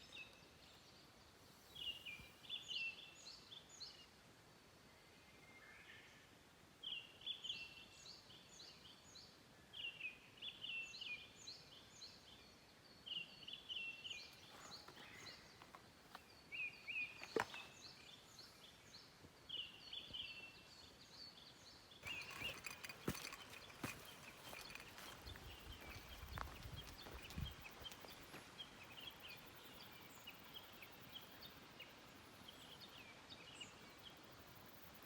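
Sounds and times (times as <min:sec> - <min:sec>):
small birds chirping: 0:00.0 - 0:04.1, 0:06.8 - 0:35.0
rustling with light knocks: 0:22.0 - 0:28.1.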